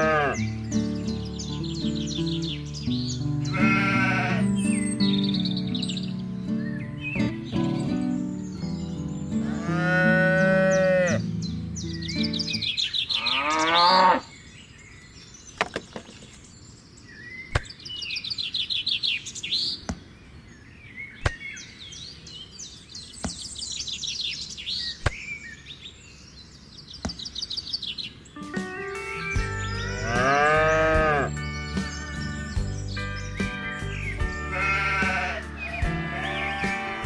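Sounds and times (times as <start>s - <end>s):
cow mooing: 0.0s - 0.4s, 3.5s - 4.5s, 9.4s - 11.2s, 13.1s - 14.3s, 29.8s - 31.4s, 34.4s - 37.0s
small birds chirping: 0.0s - 37.0s.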